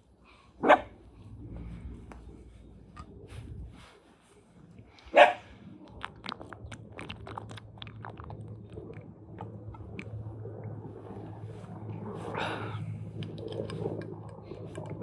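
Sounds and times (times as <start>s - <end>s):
steady low hum: 0.0s - 15.0s
dog barking: 0.6s - 1.0s, 5.1s - 5.5s.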